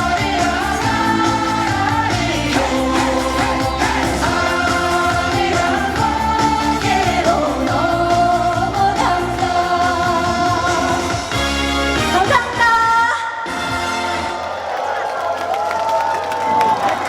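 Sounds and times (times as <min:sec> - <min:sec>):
woman singing: 0:00.0 - 0:11.3
backing track music: 0:00.0 - 0:14.5.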